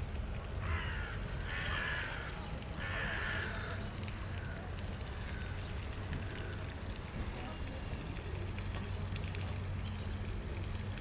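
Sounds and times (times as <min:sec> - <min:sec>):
bird giving harsh calls: 0:00.6 - 0:03.9.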